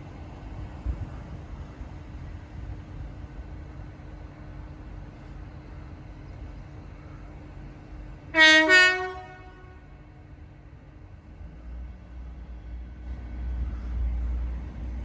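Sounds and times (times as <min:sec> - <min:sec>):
two-tone train horn: 0:08.4 - 0:10.1.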